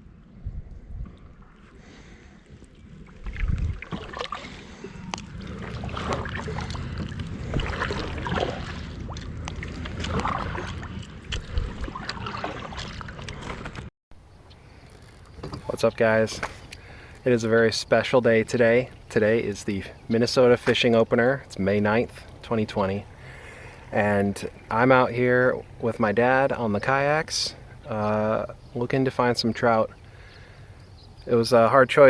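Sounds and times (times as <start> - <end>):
wind rumble on microphone: 0.0 - 1.8, 2.5 - 13.9
water lapping against kayak hull: 0.9 - 17.2, 17.9 - 24.8
small knocks and splashes: 3.0 - 13.9.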